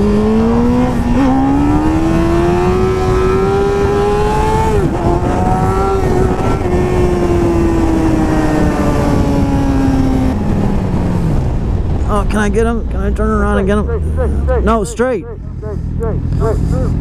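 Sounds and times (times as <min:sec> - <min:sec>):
motorcycle engine revving: 0:00.0 - 0:11.7
wind rush on microphone: 0:00.0 - 0:14.5.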